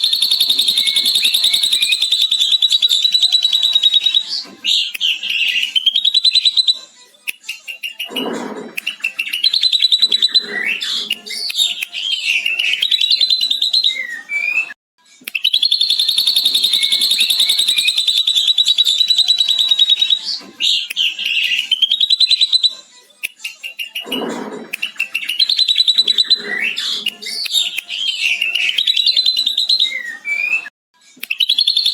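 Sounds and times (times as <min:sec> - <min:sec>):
bird singing fast chattering trills: 0:00.0 - 0:04.3, 0:15.5 - 0:20.2.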